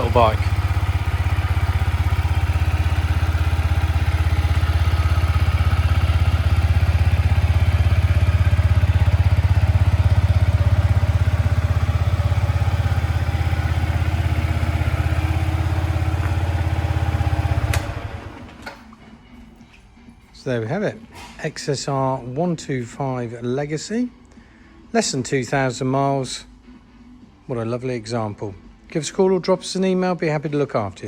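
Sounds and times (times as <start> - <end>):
motorcycle engine idling: 0.0 - 20.7.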